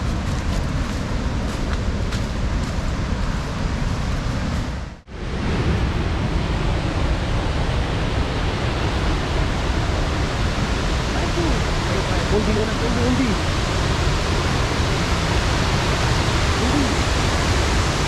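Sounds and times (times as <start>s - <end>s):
waterfall rushing: 5.1s - 18.0s.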